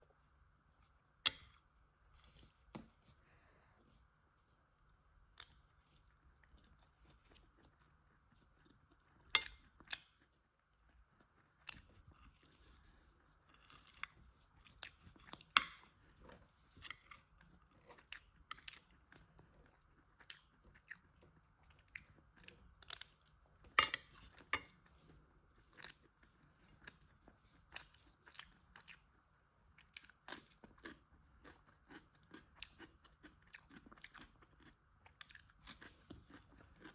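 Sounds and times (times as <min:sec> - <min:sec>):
crisp crunching chews: 0:05.4 - 0:36.9.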